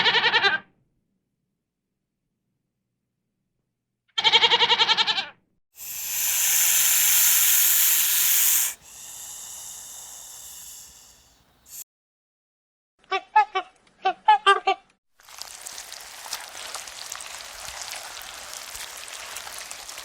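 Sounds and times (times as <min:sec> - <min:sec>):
animal quavering bleat: 0:00.0 - 0:00.6, 0:04.2 - 0:05.3
long loud hiss: 0:05.8 - 0:11.8.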